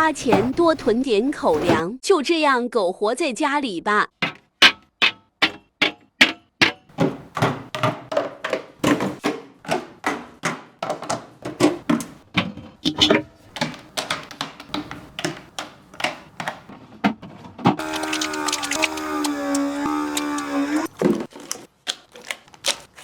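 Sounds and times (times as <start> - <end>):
food containers being set down: 4.2 - 18.8.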